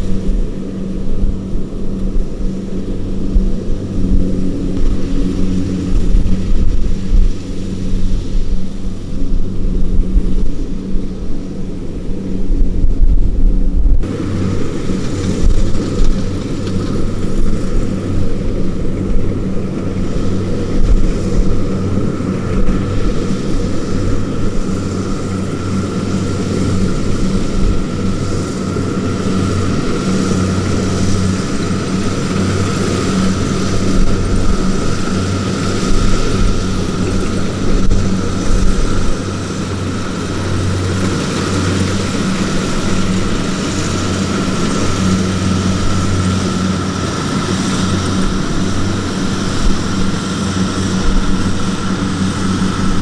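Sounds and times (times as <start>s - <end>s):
diesel engine running: 0.0s - 53.0s
thin steady whine: 0.0s - 53.0s.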